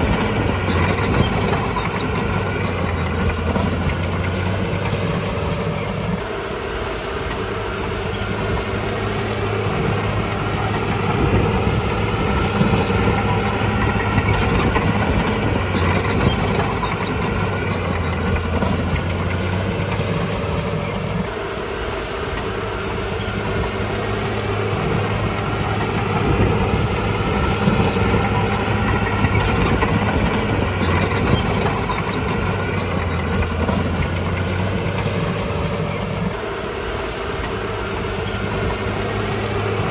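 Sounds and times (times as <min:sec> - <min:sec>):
bulldozer diesel engine working: 0:00.0 - 0:39.9
brief high squeaks: 0:24.7 - 0:36.3.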